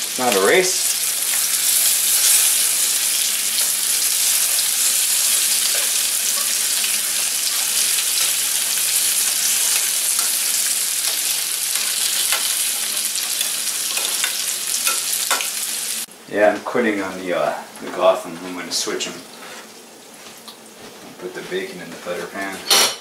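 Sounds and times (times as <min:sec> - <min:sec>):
food sizzling in frying pan: 0:00.0 - 0:22.2
metal tongs clicking on pan: 0:13.3 - 0:15.5.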